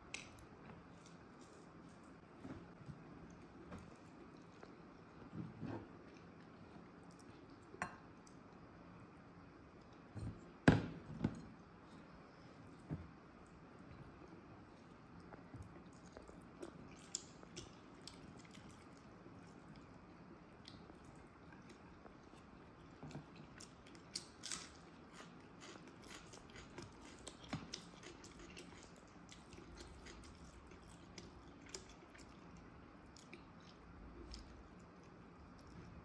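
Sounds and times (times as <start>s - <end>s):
person chewing: 20.6s - 35.8s.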